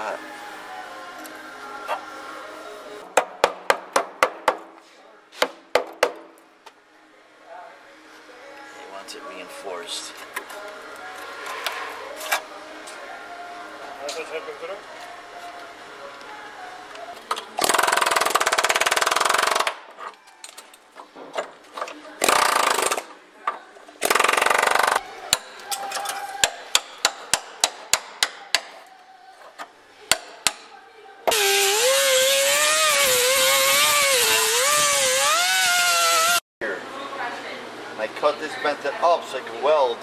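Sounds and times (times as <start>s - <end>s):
power tool grinding metal: 31.3s - 36.4s.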